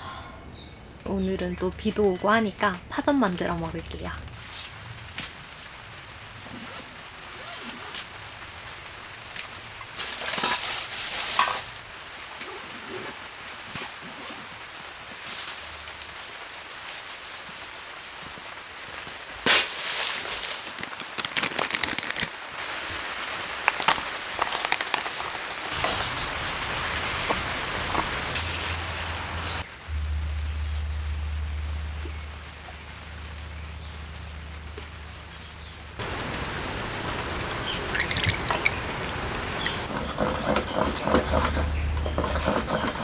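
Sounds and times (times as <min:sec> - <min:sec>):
rain pattering on a tent: 0:01.8 - 0:41.6
crackling clicks: 0:23.6 - 0:29.7.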